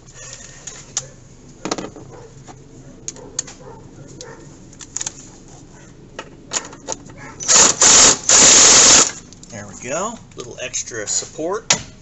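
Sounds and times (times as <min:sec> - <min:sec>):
rasping ratchet bursts: 0:07.4 - 0:09.2.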